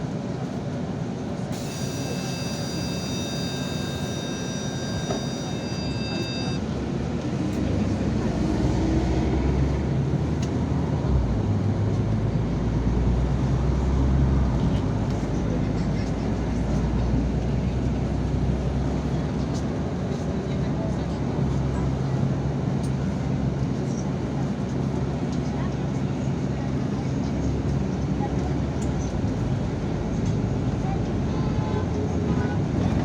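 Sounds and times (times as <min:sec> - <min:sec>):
bus engine accelerating: 0:00.0 - 0:33.0
steady electronic tone: 0:01.6 - 0:06.6.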